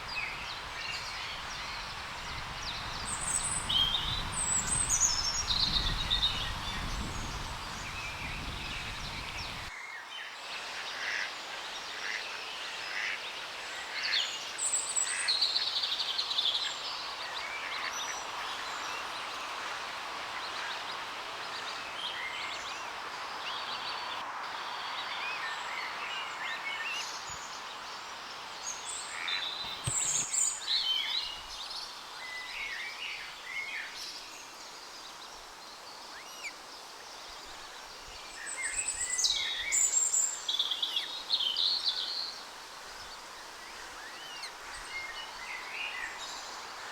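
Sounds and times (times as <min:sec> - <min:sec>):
songbirds singing and calling: 0:00.0 - 0:10.4, 0:20.4 - 0:46.9
steady background hiss: 0:00.0 - 0:46.9.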